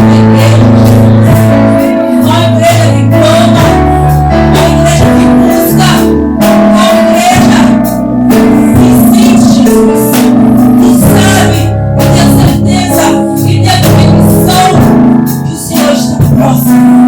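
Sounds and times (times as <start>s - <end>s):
people singing: 0.0s - 16.8s
gospel band playing: 0.0s - 17.0s.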